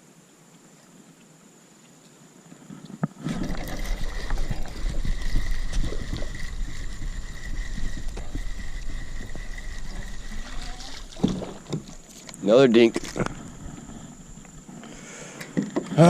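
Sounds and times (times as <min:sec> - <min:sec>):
faint high whine: 0:00.0 - 0:16.0
steady low rumble: 0:03.5 - 0:14.7.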